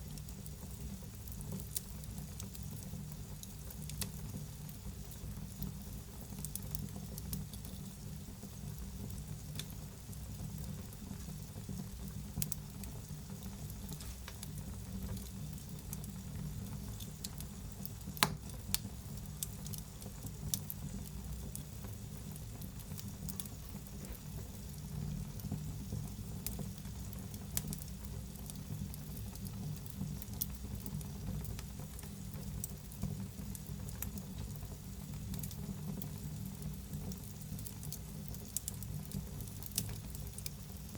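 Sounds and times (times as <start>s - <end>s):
wood fire crackling: 0.0s - 40.9s
fire pop: 18.1s - 19.6s.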